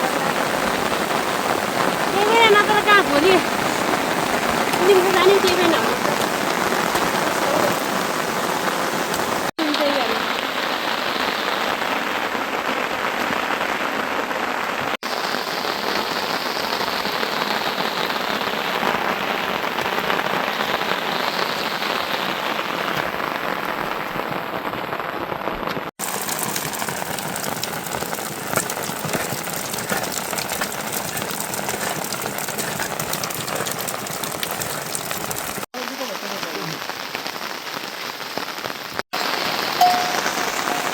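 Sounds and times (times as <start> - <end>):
steady rain falling: 0.0 - 40.9
individual raindrop ticks: 1.8 - 10.6, 25.5 - 40.9.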